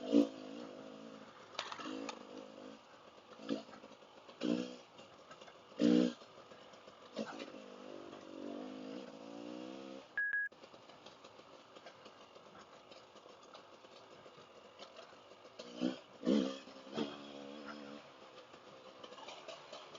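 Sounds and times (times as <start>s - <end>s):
dirt bike engine revving: 0.0s - 19.9s
high beep: 10.2s - 10.5s.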